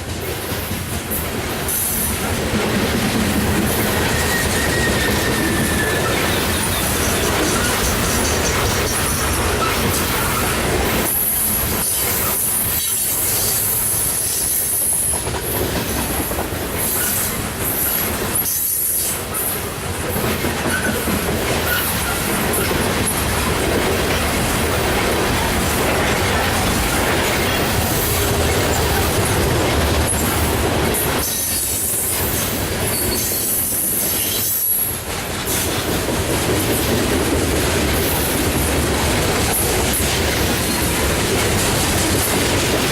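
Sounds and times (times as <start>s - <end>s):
train wheels clattering over rail joints: 0.0s - 42.9s
high-pitched wheel squeal: 3.8s - 10.6s.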